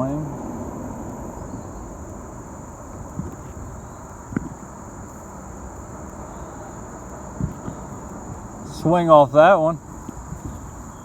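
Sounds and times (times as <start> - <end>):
low rumble: 0.0 - 9.3
insects droning: 0.0 - 11.0
short knocks: 3.1 - 4.6, 7.4 - 8.1.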